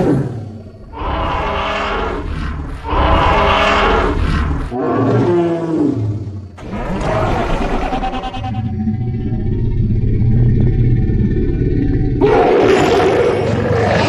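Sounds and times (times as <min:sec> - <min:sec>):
deep creature roars: 0:00.0 - 0:14.0.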